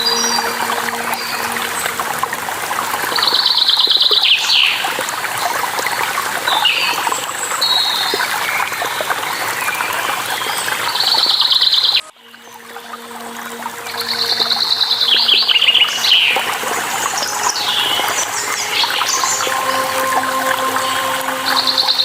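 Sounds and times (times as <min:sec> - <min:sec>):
waterfall rushing: 0:00.0 - 0:06.5, 0:12.2 - 0:22.0.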